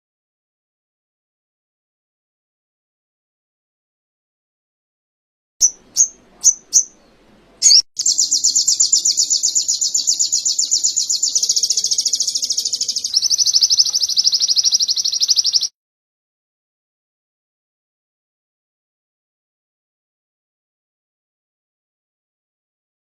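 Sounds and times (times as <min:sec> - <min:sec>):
songbird chirping and trilling: 0:05.6 - 0:15.7.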